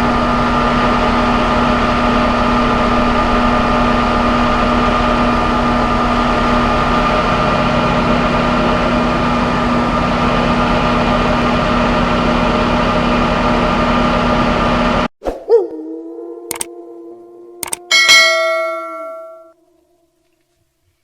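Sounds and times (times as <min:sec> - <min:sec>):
engine idling: 0:00.0 - 0:14.9.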